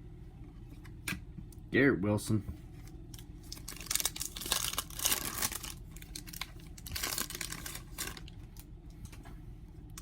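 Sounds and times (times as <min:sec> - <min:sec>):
foil wrapper crinkling: 0:03.5 - 0:08.7.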